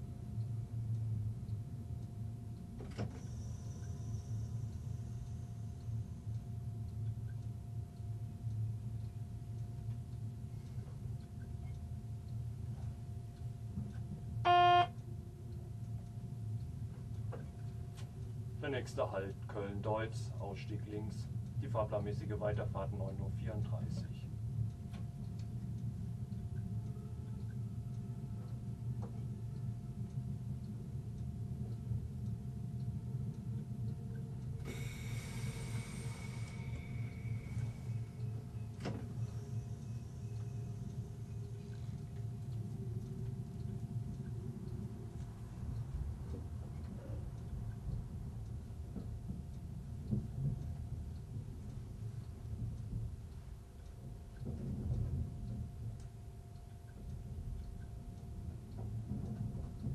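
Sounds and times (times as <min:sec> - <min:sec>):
faint steady hum: 0:00.0 - 0:59.9
hiss with high ringing tones: 0:03.0 - 0:08.9, 0:32.8 - 0:45.6
train rumbling: 0:11.6 - 0:59.9
short loud beep: 0:14.4 - 0:14.9.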